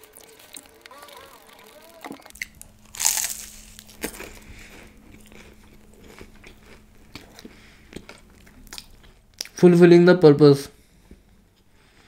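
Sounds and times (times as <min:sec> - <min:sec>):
crunchy chewing: 0:00.1 - 0:09.6
crunchy pastry bite: 0:02.3 - 0:09.6.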